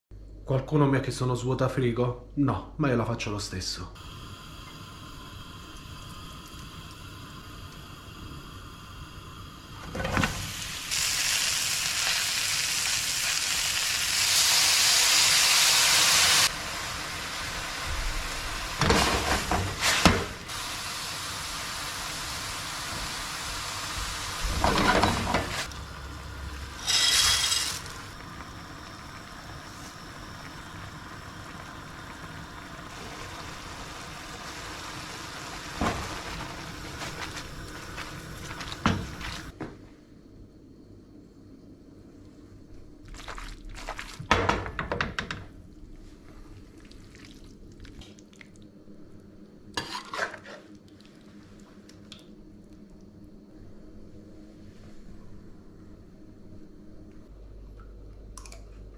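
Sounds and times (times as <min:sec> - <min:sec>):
food sizzling in a frying pan: 0:04.0 - 0:39.6.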